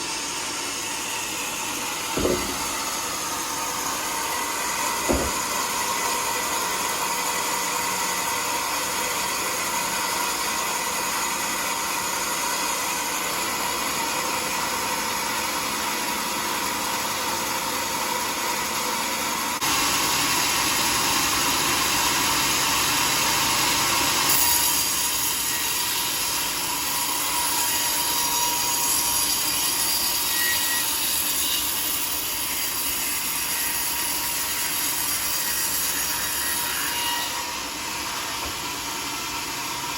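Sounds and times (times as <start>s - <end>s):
saw blade cutting log: 0.0s - 11.4s, 20.1s - 39.9s.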